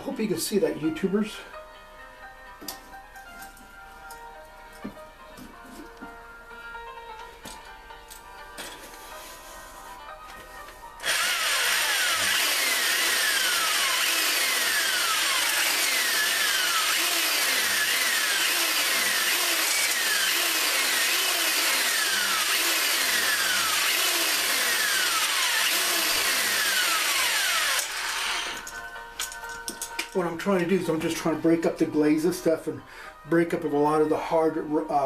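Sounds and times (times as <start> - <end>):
electric drill grinding: 11.0 - 28.9.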